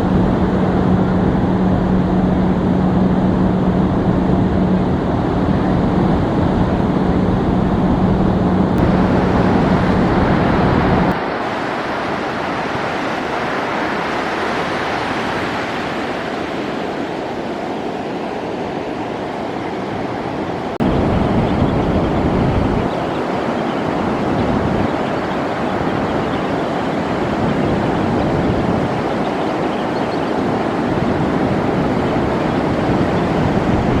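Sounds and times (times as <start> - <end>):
steady low hum: 0.0 - 11.3
surf washing on beach: 0.0 - 34.0
wind buffeting microphone: 0.0 - 34.0.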